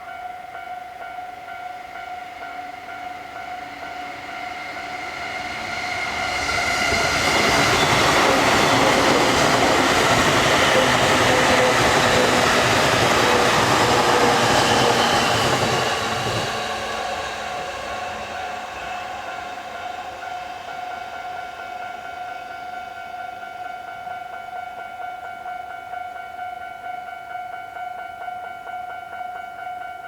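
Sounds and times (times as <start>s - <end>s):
crossing warning bell: 0.0s - 30.0s
train wheels on rails: 2.0s - 24.9s.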